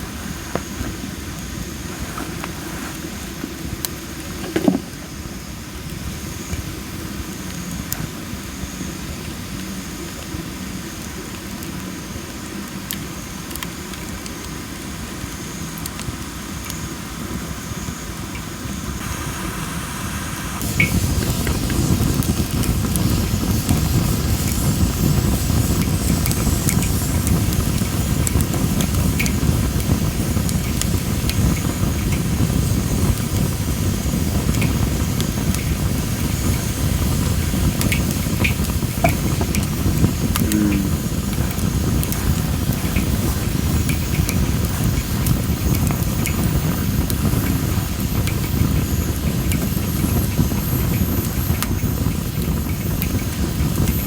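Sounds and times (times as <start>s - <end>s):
fire low rumble: 0.0s - 54.0s
firewood crackling and popping: 0.0s - 54.0s.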